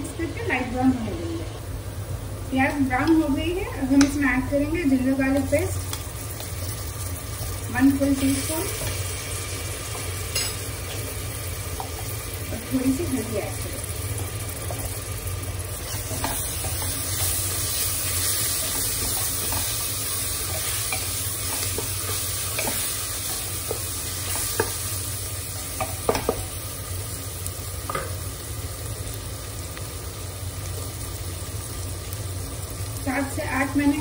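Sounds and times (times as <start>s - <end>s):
onions sizzling in hot oil: 0.0s - 34.0s
spatula knocking on pot: 25.8s - 26.5s.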